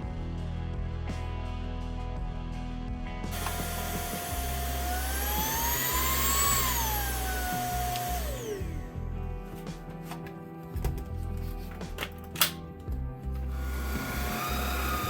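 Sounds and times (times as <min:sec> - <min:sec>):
stick vacuum motor running: 0:03.3 - 0:09.0, 0:13.5 - 0:15.0.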